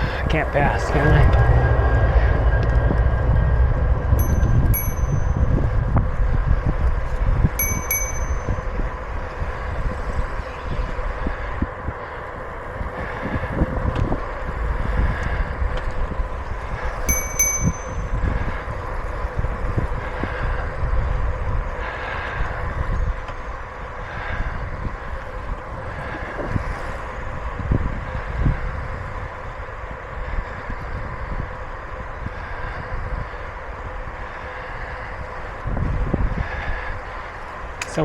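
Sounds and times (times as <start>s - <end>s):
wind noise on microphone: 0.0s - 38.0s
bicycle bell dinging: 4.2s - 6.3s, 7.6s - 9.3s, 17.1s - 18.6s.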